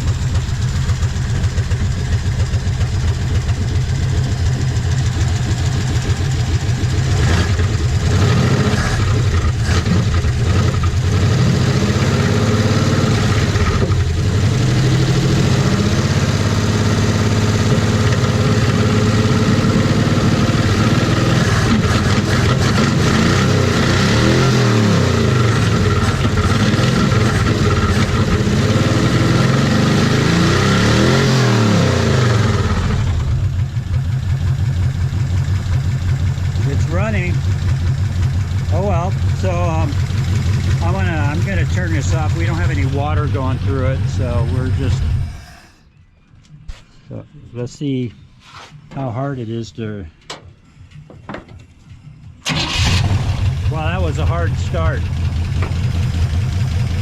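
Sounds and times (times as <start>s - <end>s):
car engine idling and revving: 0.0s - 46.7s, 50.2s - 57.0s.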